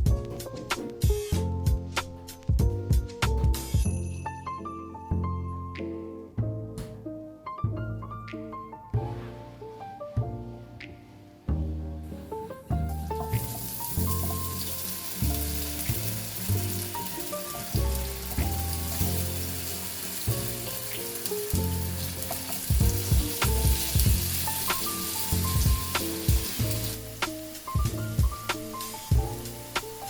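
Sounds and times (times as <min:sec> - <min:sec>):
soft instrumental music: 0:00.0 - 0:30.0
food sizzling in a pan: 0:13.0 - 0:30.0.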